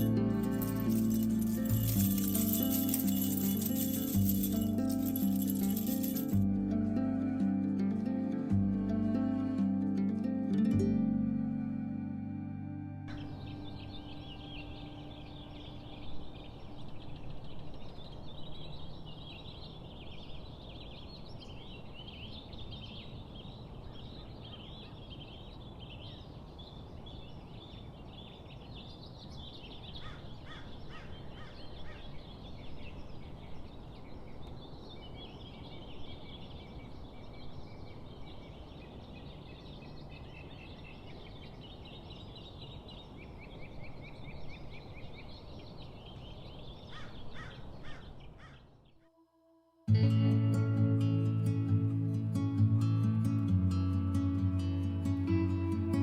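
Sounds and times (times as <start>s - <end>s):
small birds chirping: 13.1s - 49.0s
sharp bird calls: 26.8s - 34.6s, 35.2s - 49.1s.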